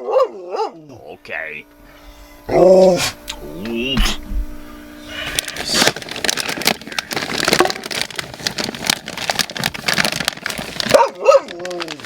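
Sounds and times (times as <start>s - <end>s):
plastic packaging crinkling: 5.1s - 12.0s.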